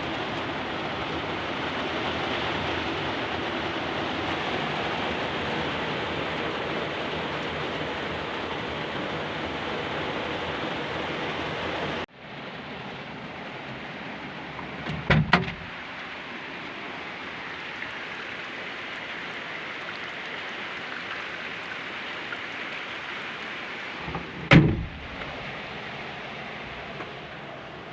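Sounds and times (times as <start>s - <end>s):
steady rain hiss: 0.0s - 27.9s
heavy thumps: 24.0s - 25.5s.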